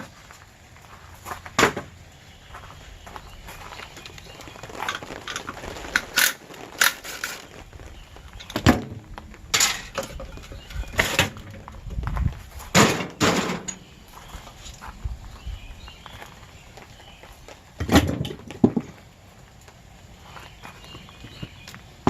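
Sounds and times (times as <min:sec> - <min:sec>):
scrap metal knocks and clanks: 0:08.5 - 0:11.6, 0:12.7 - 0:13.8.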